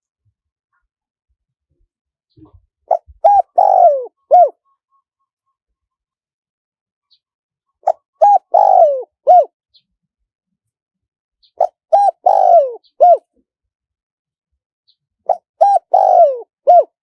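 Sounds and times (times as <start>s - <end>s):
dove cooing: 2.9s - 4.6s, 7.8s - 9.5s, 11.6s - 13.3s, 15.3s - 17.0s.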